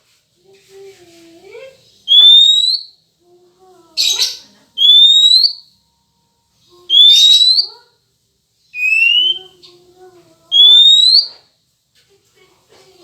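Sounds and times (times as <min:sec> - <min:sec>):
upward-sliding whistled notes: 0:08.8 - 0:09.5.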